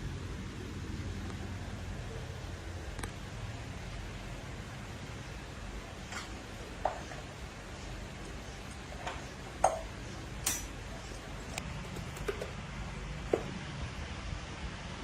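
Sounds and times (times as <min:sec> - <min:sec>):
low steady background noise: 0:00.0 - 0:15.0.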